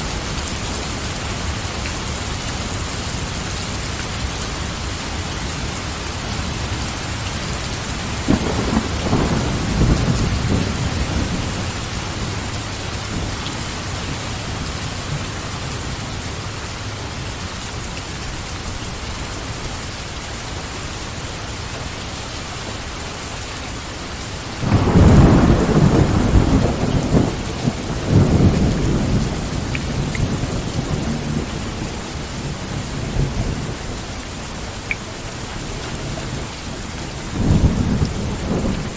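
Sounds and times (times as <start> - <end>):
heavy rain falling: 0.0 - 38.9
thunder rumbling: 5.6 - 16.1, 24.6 - 38.9.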